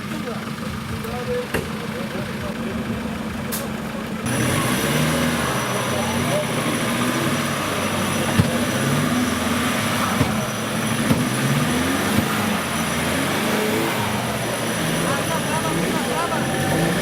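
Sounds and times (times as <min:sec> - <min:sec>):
off-road vehicle engine running: 0:00.0 - 0:17.0.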